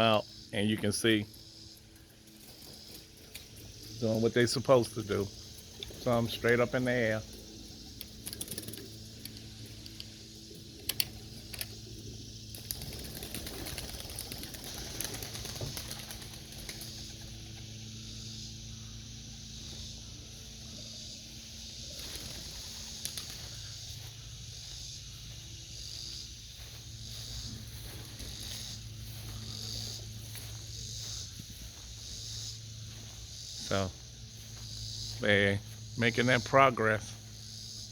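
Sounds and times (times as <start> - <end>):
steady low hum: 0.0 - 37.9
pigeons flapping wings: 8.0 - 9.5, 12.5 - 17.6, 21.9 - 23.7
sharp wing claps: 21.9 - 23.3.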